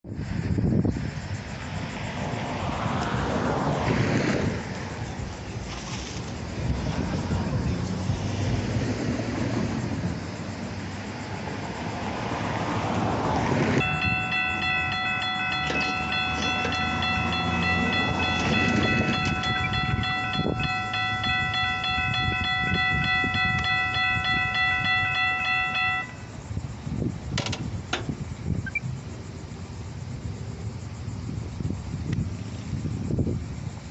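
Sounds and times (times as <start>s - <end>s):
train rumbling by: 6.4s - 26.6s
railroad crossing bell ringing: 13.8s - 26.4s.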